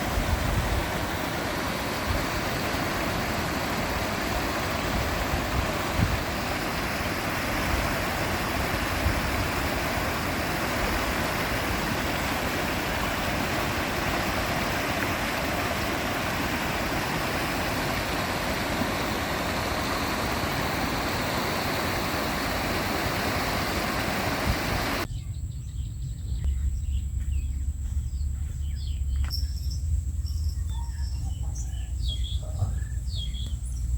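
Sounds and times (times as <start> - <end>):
wind rumble on microphone: 0.0 - 1.2, 4.2 - 6.5, 24.0 - 33.9
loud rush of flowing water: 0.0 - 25.1
faint insect chirps: 0.6 - 33.9.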